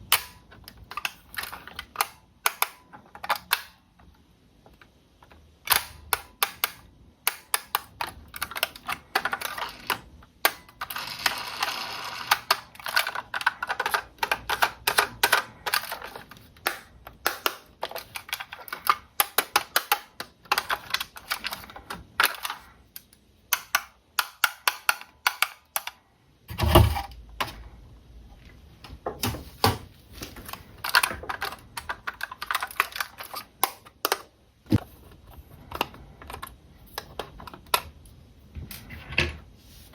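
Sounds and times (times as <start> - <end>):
plastic toy parts clicking: 0.0 - 26.0, 30.4 - 34.3.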